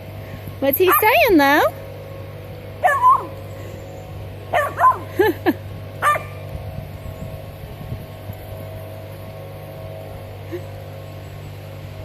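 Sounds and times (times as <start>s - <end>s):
puppy yipping: 2.8s - 3.4s, 4.6s - 5.1s, 6.0s - 6.3s.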